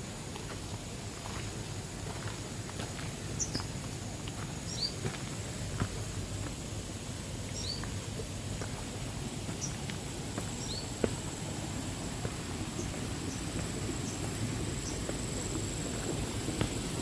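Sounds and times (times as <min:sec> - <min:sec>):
high insect drone: 0:09.1 - 0:17.0.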